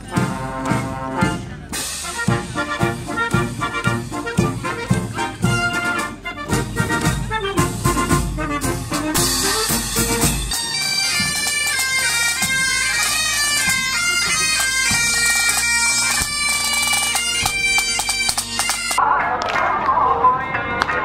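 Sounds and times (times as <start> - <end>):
snare and bass drum strokes: 0.0 - 19.0
music: 0.0 - 21.0
bagpipes playing over drones: 9.2 - 19.0.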